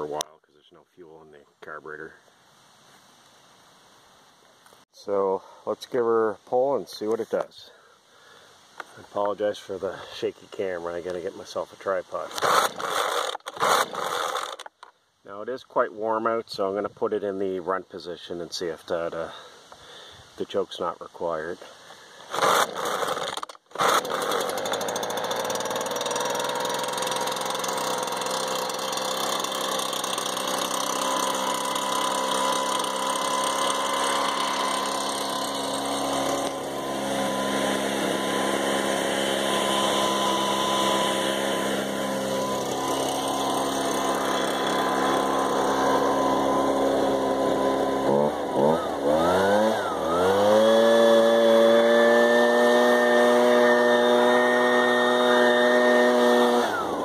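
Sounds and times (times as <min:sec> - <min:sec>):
leaf blower engine idling and revving: 0:09.8 - 0:14.9, 0:21.9 - 0:57.0.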